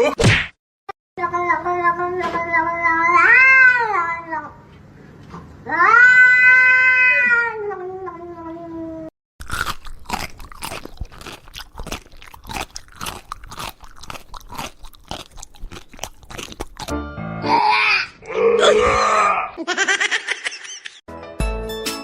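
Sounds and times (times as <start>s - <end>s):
cat meowing: 5.7s - 8.2s
animal chewing and crunching: 9.4s - 16.9s.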